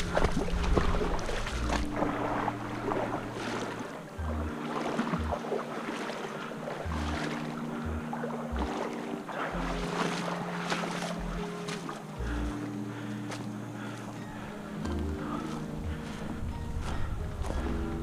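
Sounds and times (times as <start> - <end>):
sustained synth notes: 0.0 - 18.0
blocky bass pulses: 7.8 - 8.8.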